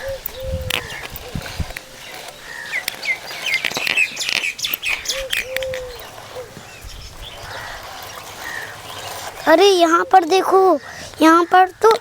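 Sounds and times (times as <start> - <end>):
low cooing bird call: 0.0 - 9.2
small birds chirping: 0.0 - 12.0
sharp clicks: 0.2 - 12.0.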